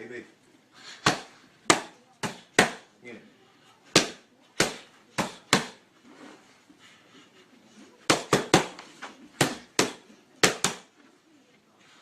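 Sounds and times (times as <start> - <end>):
punches smacking boxing target: 4.0 - 5.8, 9.4 - 10.9.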